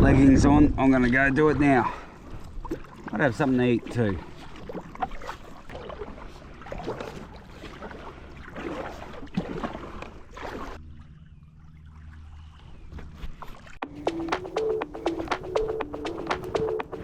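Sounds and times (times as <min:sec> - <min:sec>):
water splashing around a kayak: 0:01.0 - 0:13.8.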